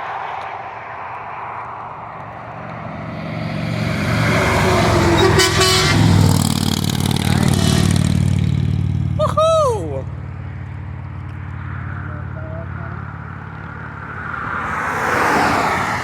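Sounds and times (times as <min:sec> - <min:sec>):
diesel truck engine rumble passing: 0:02.4 - 0:16.0
truck horn blast: 0:03.6 - 0:09.3, 0:11.9 - 0:13.2.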